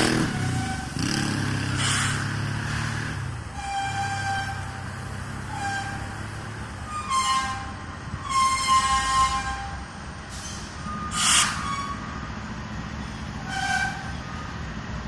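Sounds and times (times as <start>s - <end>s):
high-pitched wheel squeals: 0.0s - 2.2s, 3.5s - 12.2s, 13.4s - 14.6s
freight train rumbling: 0.0s - 15.0s.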